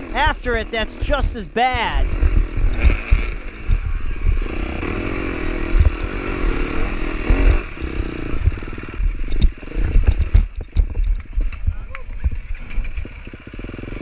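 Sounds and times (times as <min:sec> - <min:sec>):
dirt bike engine revving: 0:01.9 - 0:10.6.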